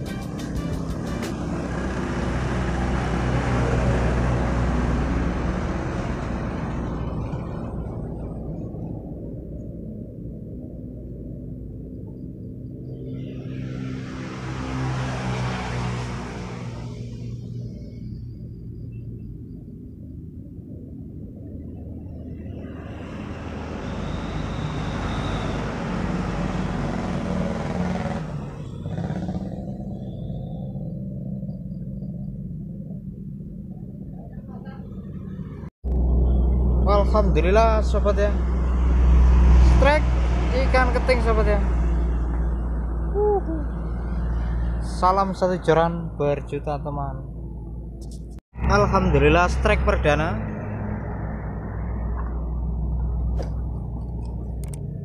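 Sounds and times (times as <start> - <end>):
low steady drone: 0.0 - 15.1, 15.7 - 25.4
road vehicle passing: 0.0 - 55.0
engine droning past: 0.9 - 48.0, 48.6 - 55.0.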